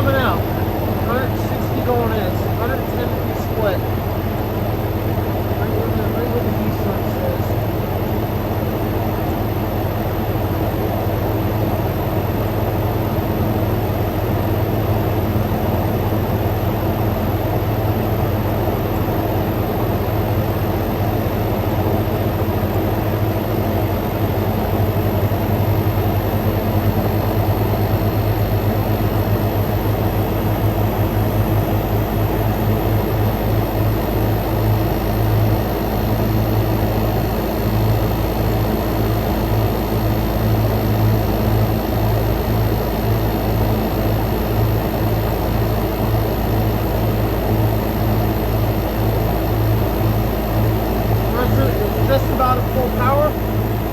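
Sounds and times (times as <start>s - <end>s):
fans rushing: 0.0s - 4.2s, 51.2s - 53.5s
compressor hum: 0.0s - 53.9s.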